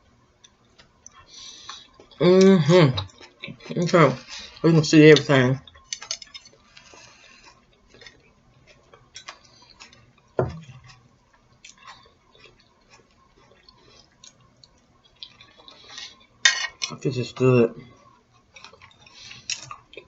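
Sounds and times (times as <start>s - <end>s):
low thump: 10.4s - 10.7s.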